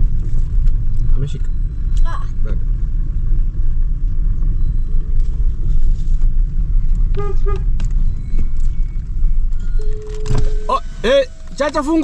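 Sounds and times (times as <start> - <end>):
vehicle engine rumbling: 0.0 - 12.0
horn toots: 7.1 - 7.8, 9.8 - 12.0.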